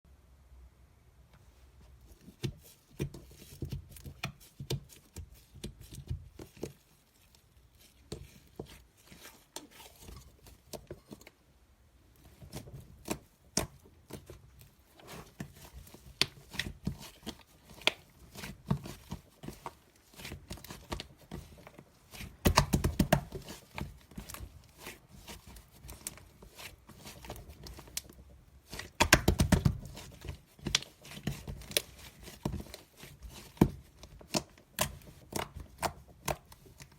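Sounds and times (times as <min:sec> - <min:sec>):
clicks and crackles from handling: 0:12.2 - 0:36.9.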